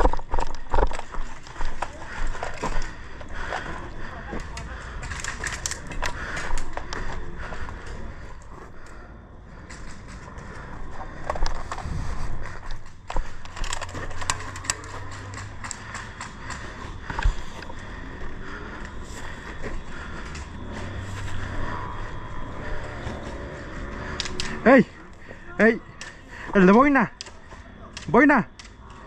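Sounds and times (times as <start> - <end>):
low rumble: 0.0 - 25.2
sharp clicks and knocks: 11.2 - 17.8.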